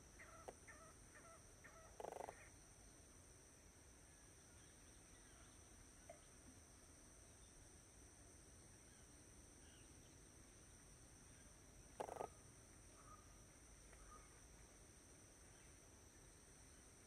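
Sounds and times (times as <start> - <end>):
faint bird chirps: 0.2 - 2.6, 11.3 - 14.4.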